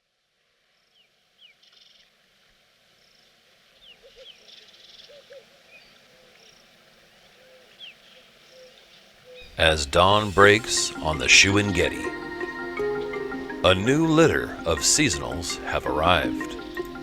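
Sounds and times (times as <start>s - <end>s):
insects buzzing: 9.4s - 17.0s.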